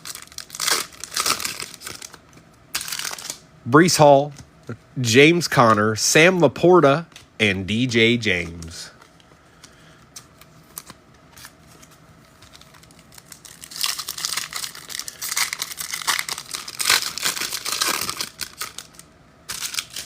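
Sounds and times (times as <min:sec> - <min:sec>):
wrapper crinkling and tearing: 0:00.0 - 0:03.4, 0:10.5 - 0:20.0.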